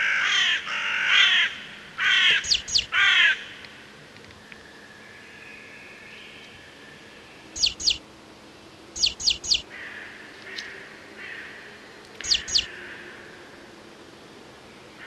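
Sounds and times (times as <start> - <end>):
bird chirping: 2.3 - 3.0, 4.4 - 8.0, 8.6 - 9.7, 12.1 - 12.8.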